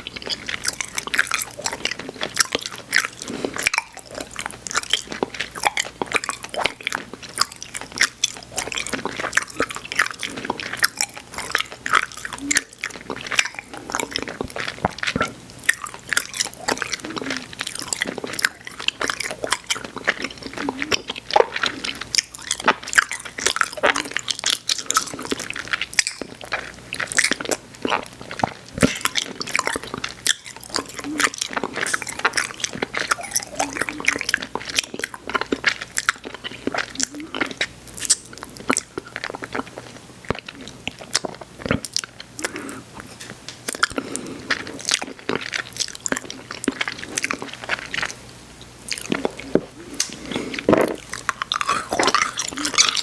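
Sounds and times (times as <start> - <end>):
chewing sticky candy: 0.0 - 53.0
wet mouth clicks and smacks: 44.8 - 53.0.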